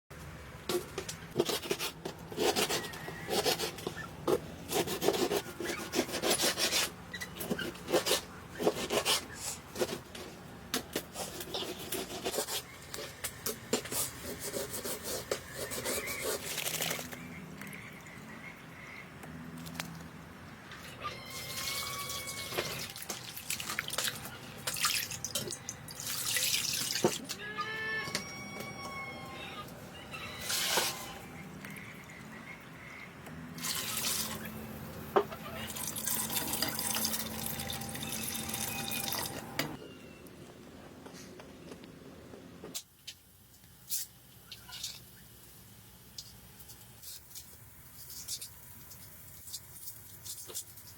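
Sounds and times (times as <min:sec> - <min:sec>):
water dripping and splashing: 0:21.6 - 0:27.2.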